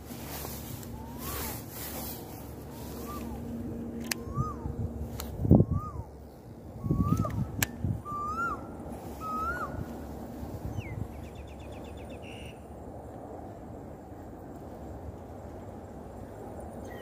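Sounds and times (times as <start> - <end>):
bird whistled call: 1.0 - 1.7, 2.8 - 3.4, 4.1 - 4.8, 5.6 - 6.2, 6.8 - 9.8.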